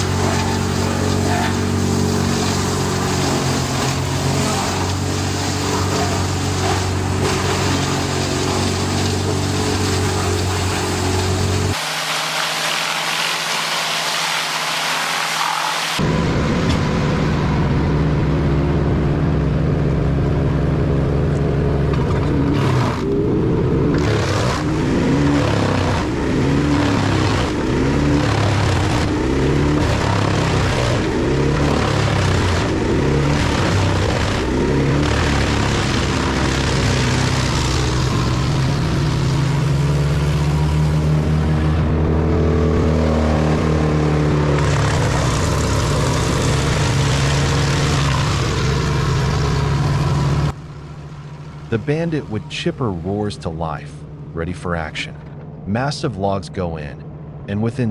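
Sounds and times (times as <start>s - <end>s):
hissing rush: 0.0s - 16.0s
wood chipper engine under load: 0.0s - 17.0s, 20.9s - 51.8s.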